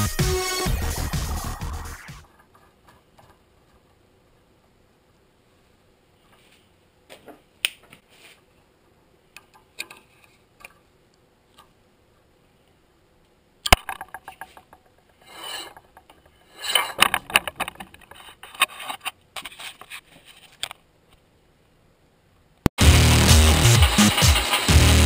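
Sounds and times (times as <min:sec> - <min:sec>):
rubbing and scraping: 0:14.5 - 0:20.8.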